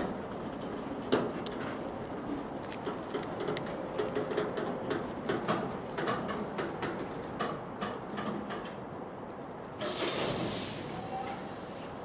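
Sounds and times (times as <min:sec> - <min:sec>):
train wheels clicking over rail joints: 0:00.0 - 0:12.0
loud hiss: 0:09.8 - 0:12.0.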